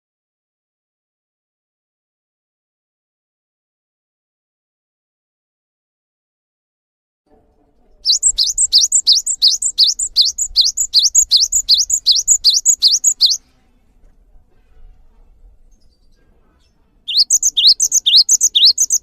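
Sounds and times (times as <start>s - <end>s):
sparrow chirping song: 7.8s - 13.4s, 15.6s - 19.0s.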